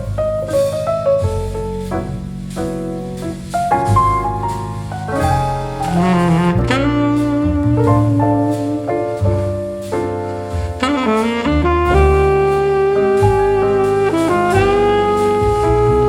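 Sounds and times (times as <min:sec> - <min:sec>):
piano: 0:00.0 - 0:16.0
walking double bass: 0:00.0 - 0:16.0
saxophone melody: 0:05.8 - 0:09.6, 0:10.7 - 0:16.0.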